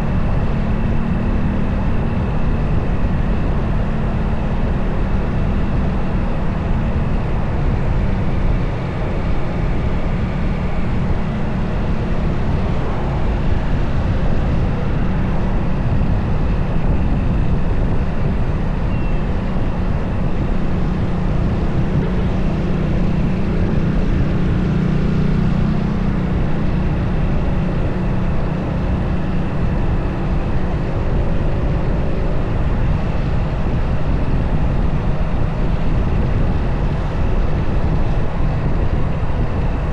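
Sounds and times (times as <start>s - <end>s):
motorcycle engine running: 0.0s - 39.9s
wind rumble on microphone: 0.0s - 39.9s.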